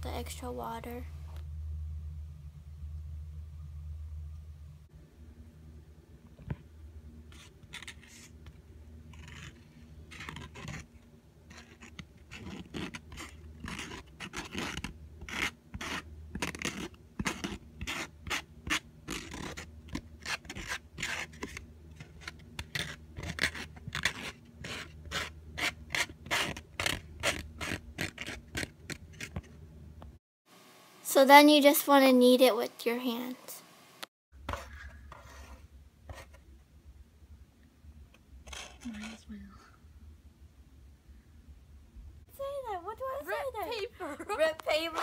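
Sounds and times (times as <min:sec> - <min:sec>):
low hum: 0:00.0 - 0:14.0, 0:34.7 - 0:45.0
toothpick scraping in container: 0:09.1 - 0:10.9, 0:11.5 - 0:29.4, 0:38.5 - 0:39.2.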